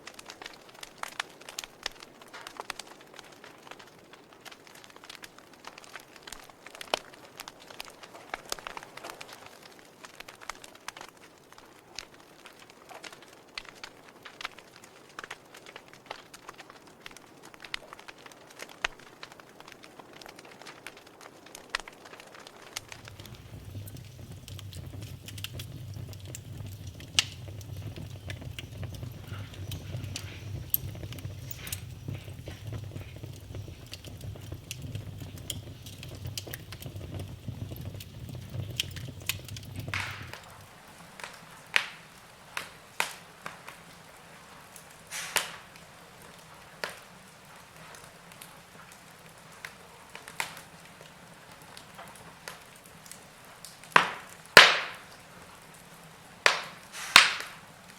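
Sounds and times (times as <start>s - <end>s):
wood fire crackling and popping: 0.0s - 57.9s
low rumble: 22.9s - 40.6s.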